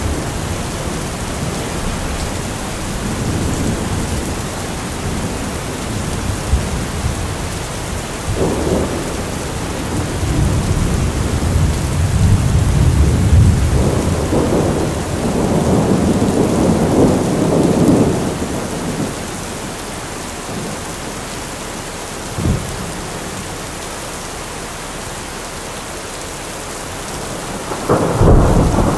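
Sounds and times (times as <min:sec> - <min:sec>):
rolling thunder: 0:00.0 - 0:19.3, 0:27.1 - 0:28.9
steady rain: 0:00.0 - 0:28.9
sharp thunderclap: 0:08.3 - 0:19.1, 0:27.3 - 0:28.9.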